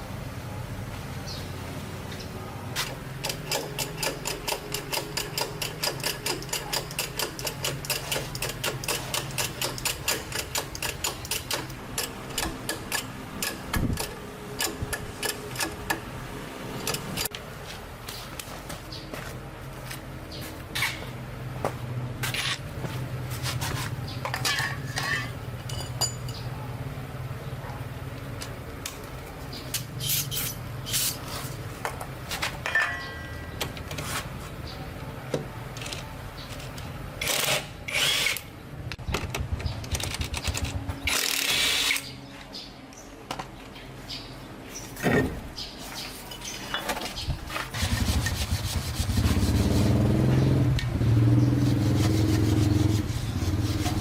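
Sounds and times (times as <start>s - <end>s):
engine running: 47.6s - 54.0s.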